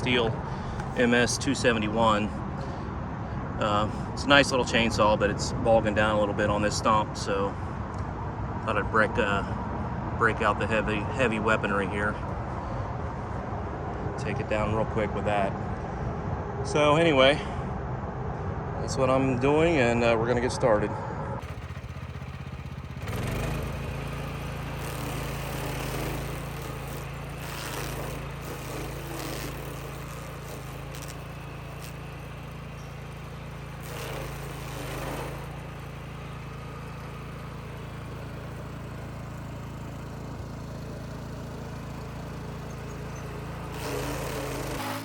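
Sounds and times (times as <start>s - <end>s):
small gasoline engine running: 21.4s - 45.0s.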